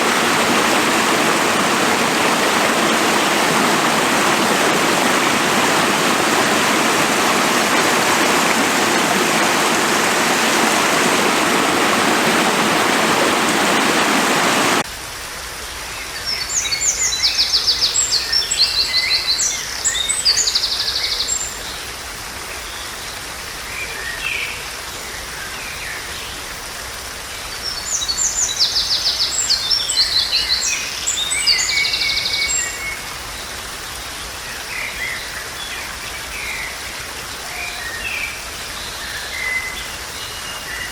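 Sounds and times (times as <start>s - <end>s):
stream water rushing: 0.0s - 14.9s.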